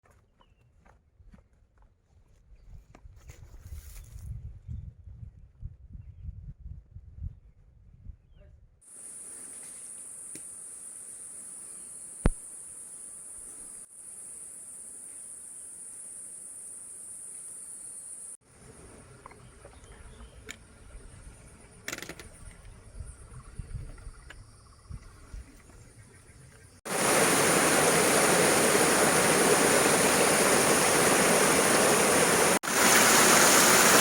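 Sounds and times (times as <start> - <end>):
insects chirring: 8.9 - 19.2, 20.2 - 34.0.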